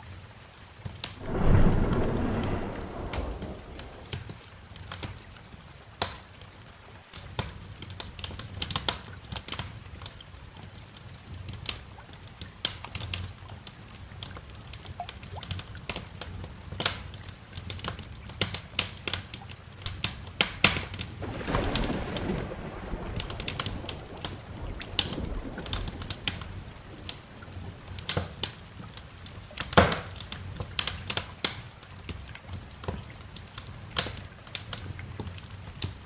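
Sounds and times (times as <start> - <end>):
rush of noise: 1.2 - 4.3
wood fire crackling: 1.2 - 4.4, 21.2 - 29.8.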